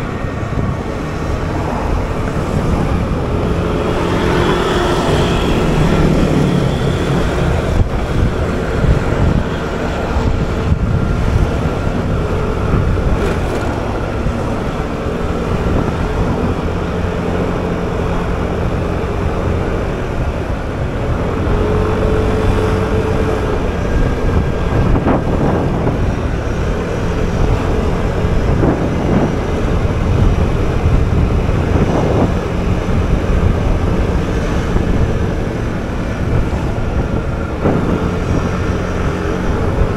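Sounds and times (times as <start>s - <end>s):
motor scooter engine: 0.0s - 39.9s
road noise rumble: 0.0s - 39.9s
surrounding traffic: 0.0s - 39.9s.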